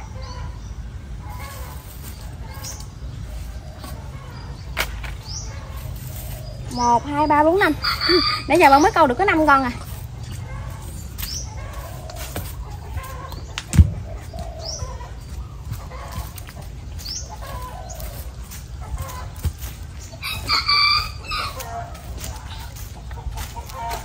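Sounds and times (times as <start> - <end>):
birds chirping: 0.0 - 24.0
sharp thump: 13.6 - 14.1.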